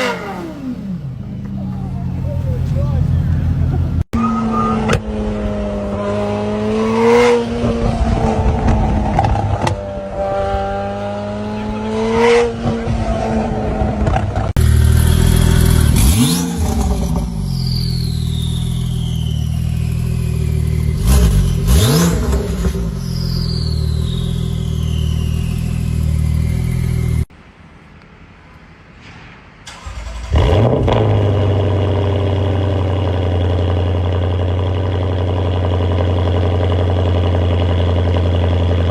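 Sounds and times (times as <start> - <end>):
car engine revving: 0.0 - 27.3, 29.7 - 38.9
engine starting and idling: 29.6 - 31.5.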